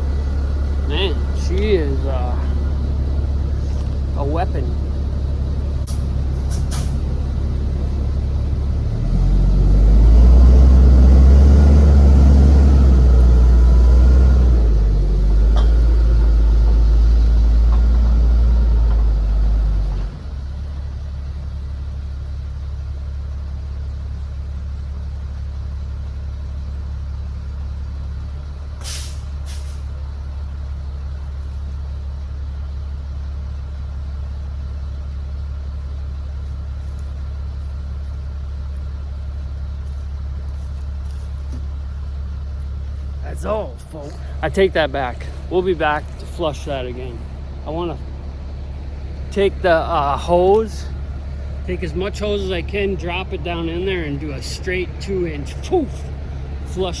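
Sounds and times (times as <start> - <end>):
drill rig engine idling and revving: 0.0 - 57.0
air brake hissing: 5.9 - 7.1, 28.8 - 29.9.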